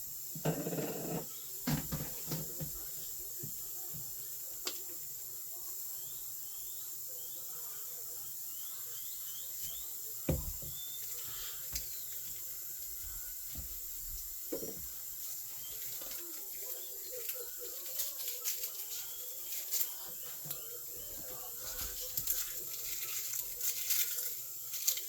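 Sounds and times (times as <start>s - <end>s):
water running: 0.0s - 25.0s
kitchenware clicking and clattering: 0.4s - 2.9s.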